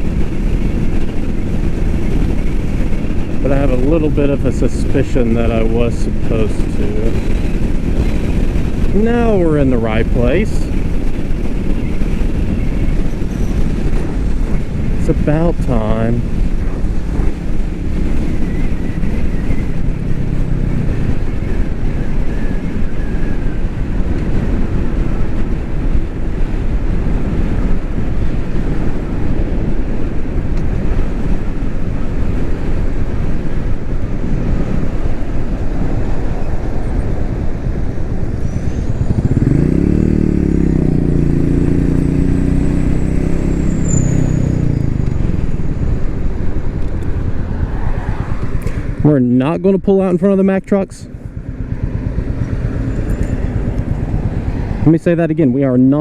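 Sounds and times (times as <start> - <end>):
motorcycle engine riding: 0.0 - 56.0
road noise: 0.0 - 56.0
engine note rising in pitch: 37.9 - 49.2.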